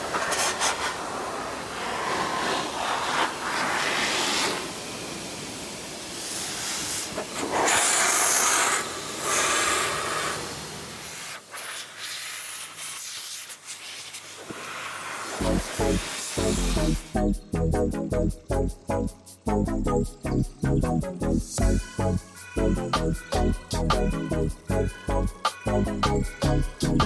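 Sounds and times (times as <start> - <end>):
car dryer blowing air: 0.0 - 11.8, 14.4 - 17.1.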